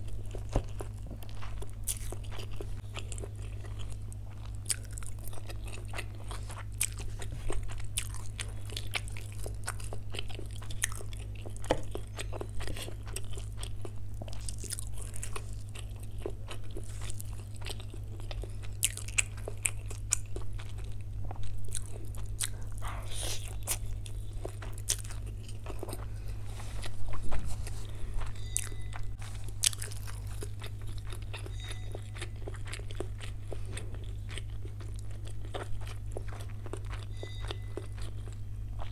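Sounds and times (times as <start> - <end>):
chewing and crunching food: 0.0 - 38.9
steady low hum: 0.0 - 38.9.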